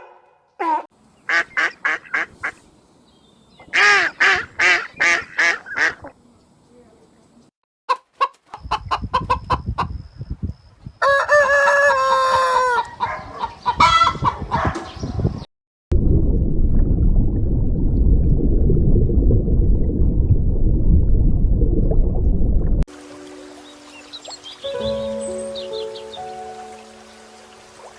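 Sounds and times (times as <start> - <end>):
chickens clucking: 7.9 - 10.0, 11.6 - 14.9
rooster crowing: 11.0 - 13.2
steady low rumbling: 15.9 - 22.9.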